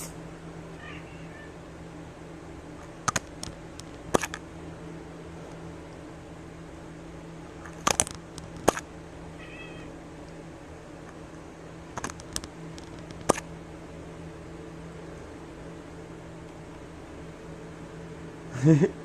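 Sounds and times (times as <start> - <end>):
low background hum: 0.0 - 19.0
cat meowing: 0.8 - 1.6, 9.4 - 9.9.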